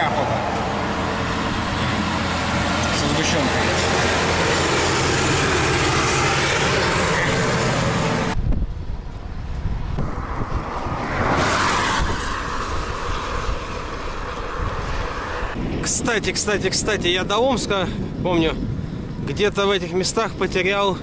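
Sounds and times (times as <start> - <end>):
heavy vehicle engine humming: 0.0 - 15.8
car passing by: 9.8 - 15.8.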